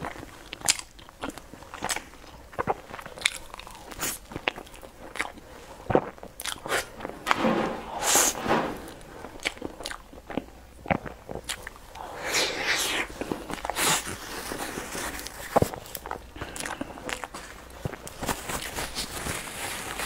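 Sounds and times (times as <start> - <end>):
wet chewing and lip-smacking: 0.0 - 6.9, 9.4 - 12.0, 15.2 - 18.2.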